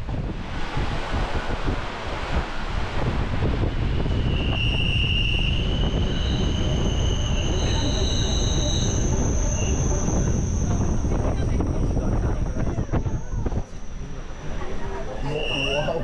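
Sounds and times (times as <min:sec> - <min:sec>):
train rumbling on rails: 0:00.0 - 0:16.0
high-pitched wheel squeal: 0:04.0 - 0:14.1, 0:15.2 - 0:16.0.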